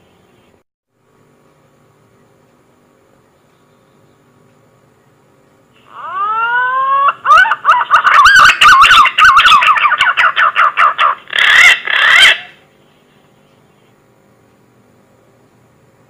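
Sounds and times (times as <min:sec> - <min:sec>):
pigeon whistled song: 0:06.1 - 0:12.5.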